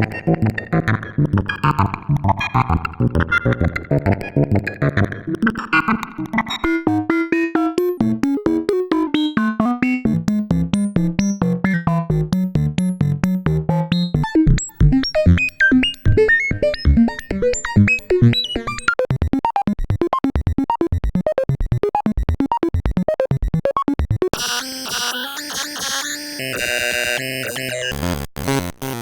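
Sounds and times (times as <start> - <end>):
synthesizer repeated short notes: 20.9 - 29.0.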